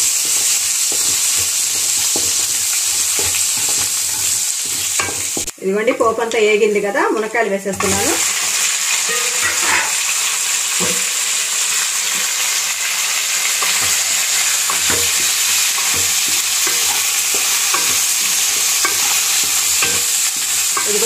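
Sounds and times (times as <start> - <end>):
frying hiss in oil: 0.0 - 6.5, 7.6 - 21.0.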